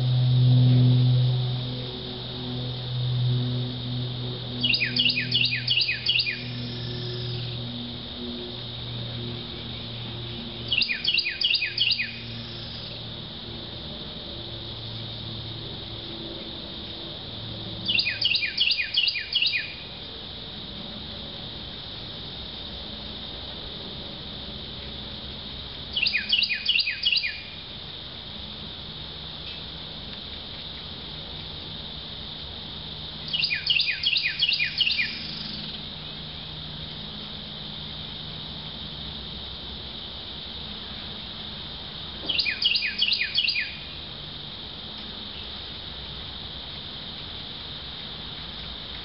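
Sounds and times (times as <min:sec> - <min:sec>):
insects droning: 0:00.0 - 0:49.0
songbird singing: 0:03.9 - 0:07.8, 0:08.7 - 0:13.1, 0:17.7 - 0:20.0, 0:25.9 - 0:27.7, 0:33.2 - 0:36.3, 0:42.2 - 0:44.1.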